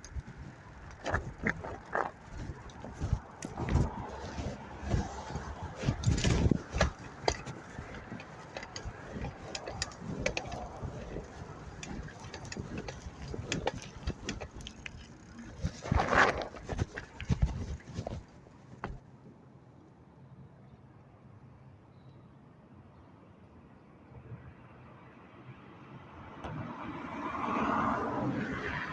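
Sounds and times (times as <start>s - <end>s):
bicycle knocking and rattling: 0.0s - 19.2s
road noise: 0.0s - 19.3s, 25.4s - 28.9s.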